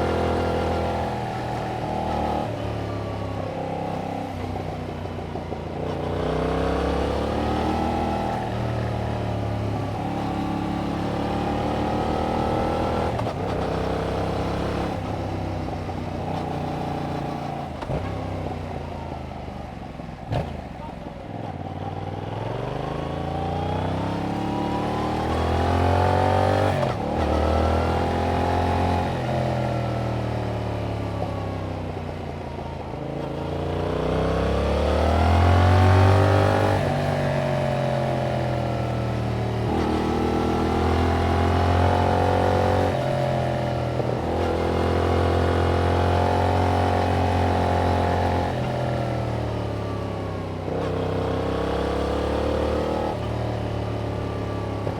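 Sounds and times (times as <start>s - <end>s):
motorcycle engine revving: 21.7s - 32.1s, 33.0s - 54.9s.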